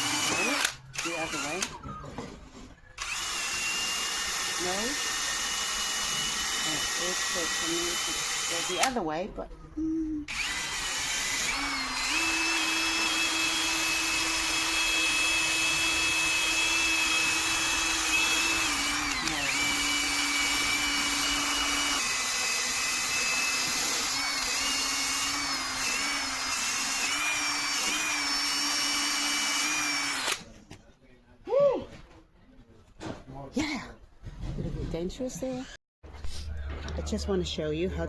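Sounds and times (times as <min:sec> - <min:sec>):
drill sanding metal: 0:00.0 - 0:01.7, 0:03.0 - 0:09.0, 0:10.3 - 0:30.4.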